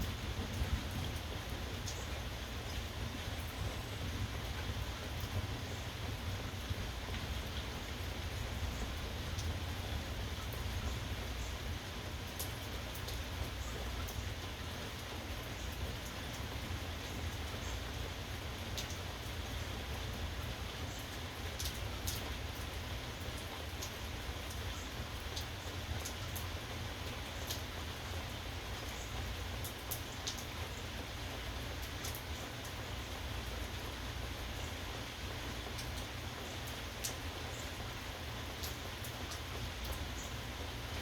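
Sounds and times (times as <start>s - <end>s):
steady rain: 0.0s - 41.0s
sharp raindrop ticks: 0.4s - 2.8s, 8.7s - 11.6s, 12.2s - 14.4s, 18.7s - 30.8s, 31.6s - 33.8s, 35.4s - 41.0s.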